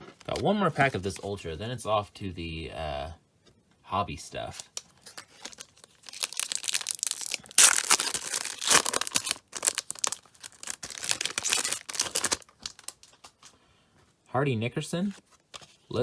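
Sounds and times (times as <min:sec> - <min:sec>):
wrapper tearing and crinkling: 0:04.6 - 0:13.4.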